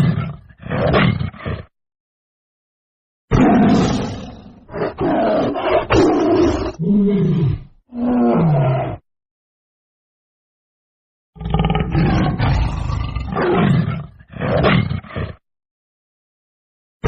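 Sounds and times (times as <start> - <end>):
tiger roaring: 0.0 - 1.7, 3.3 - 9.0, 11.4 - 15.4.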